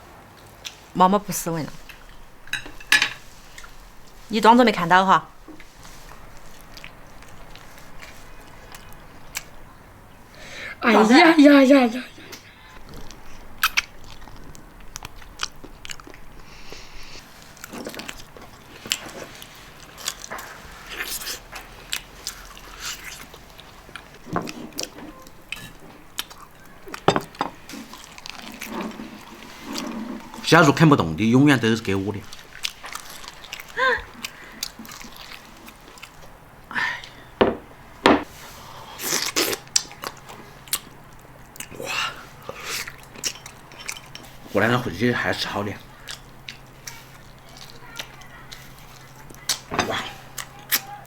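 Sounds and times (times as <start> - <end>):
chewing and smacking: 5.4 - 9.7, 12.2 - 30.4, 31.8 - 36.5, 39.0 - 44.5, 45.8 - 51.0
teeth clicking on bone: 12.3 - 16.3
knocking and rubbing at table: 37.4 - 38.3.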